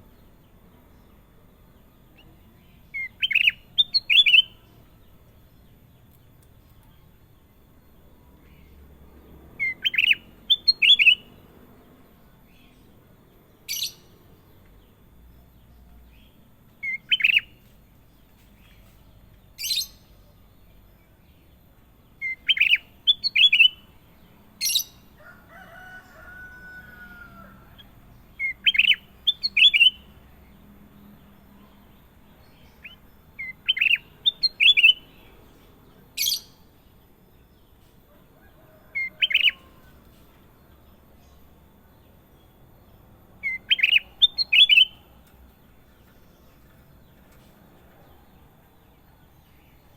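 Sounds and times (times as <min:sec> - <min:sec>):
sharp high bird chirps: 0:28.5 - 0:30.1, 0:43.4 - 0:45.0
bird whistling phrases: 0:43.5 - 0:45.0.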